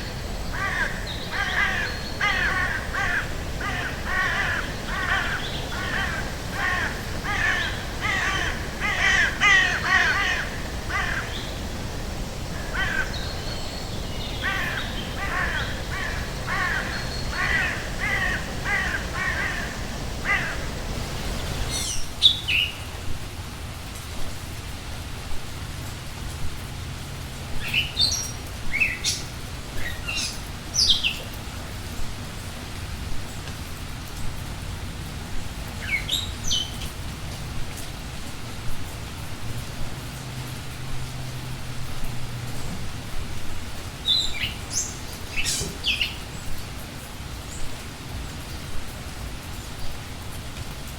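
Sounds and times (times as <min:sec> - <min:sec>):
bird harsh repeated calls: 0:00.0 - 0:22.2.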